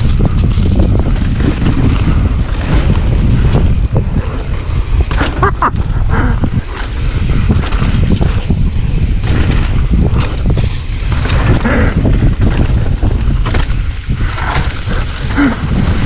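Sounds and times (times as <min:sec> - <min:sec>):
tyres rumbling on trail: 0:00.0 - 0:16.0
wind buffeting microphone: 0:00.0 - 0:16.0.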